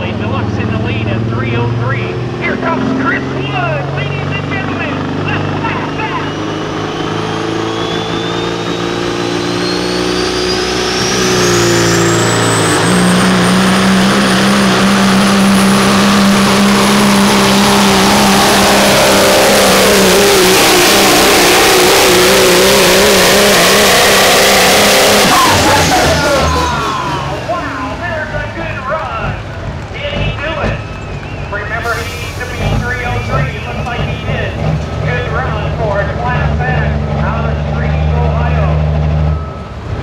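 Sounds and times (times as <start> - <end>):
diesel truck engine at full throttle: 0.0 - 40.0
turbo whistle climbing: 5.7 - 28.1.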